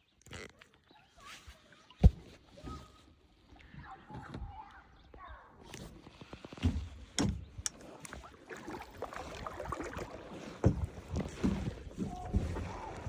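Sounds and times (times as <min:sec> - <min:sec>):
kayak paddle strokes splashing: 0:05.8 - 0:13.0.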